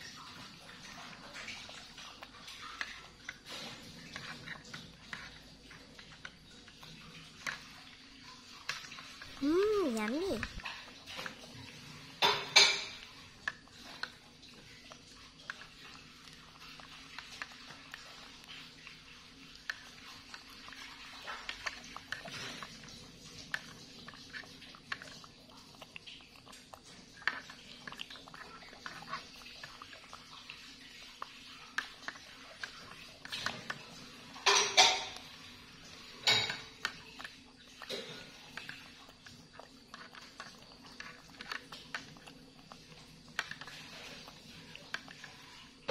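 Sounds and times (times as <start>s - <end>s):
clattering on a tray: 12.2s - 13.0s, 34.4s - 35.2s.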